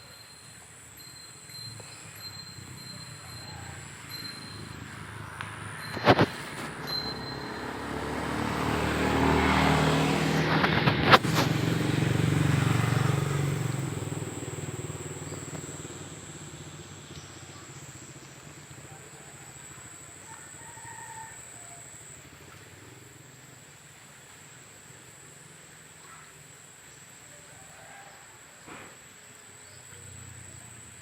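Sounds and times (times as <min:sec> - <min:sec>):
vehicle engine passing by: 0:01.7 - 0:25.8.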